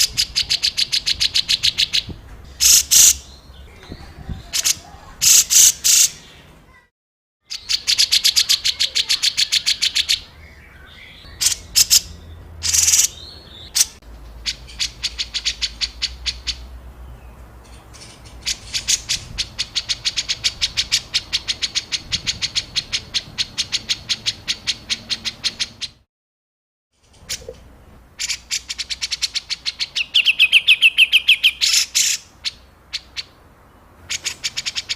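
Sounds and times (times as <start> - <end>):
songbird harsh rapid notes: 0.0 - 3.4, 4.4 - 6.3, 11.1 - 16.7.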